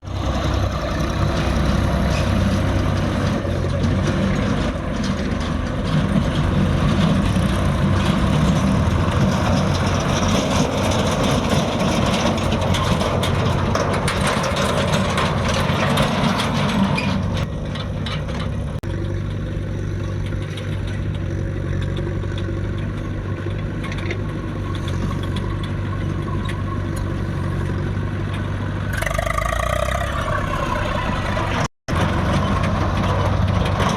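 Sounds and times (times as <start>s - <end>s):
diesel engine working: 0.0s - 33.9s
metal clanks: 2.0s - 18.8s.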